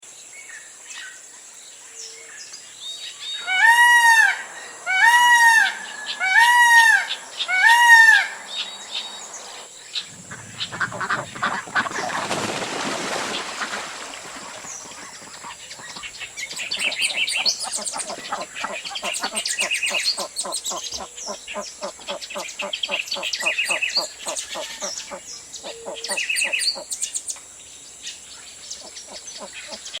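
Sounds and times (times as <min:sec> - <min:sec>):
birds honking: 0:03.4 - 0:26.9
rustling rush: 0:09.1 - 0:15.8.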